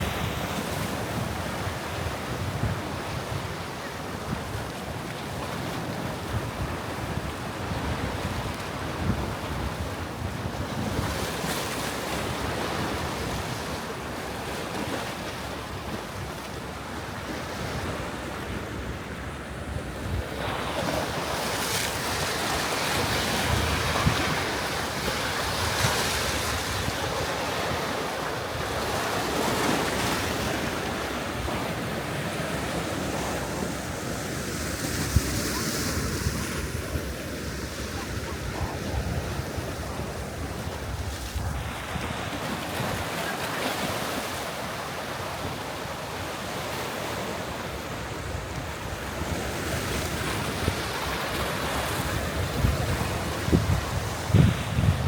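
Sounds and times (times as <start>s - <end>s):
wind buffeting microphone: 19.7s - 34.0s, 51.8s - 55.0s.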